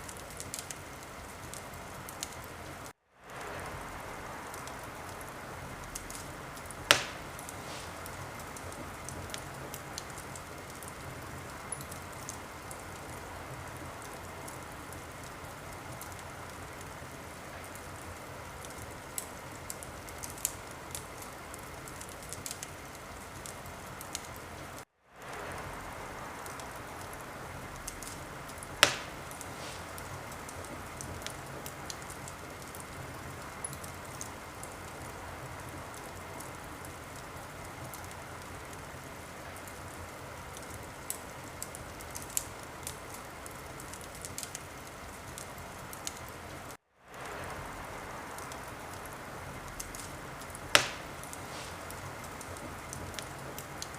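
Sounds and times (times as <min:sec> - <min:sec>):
wood fire crackling: 0:00.0 - 0:53.9
loud pop of fire: 0:06.0 - 0:11.0, 0:27.8 - 0:32.8, 0:49.8 - 0:53.9.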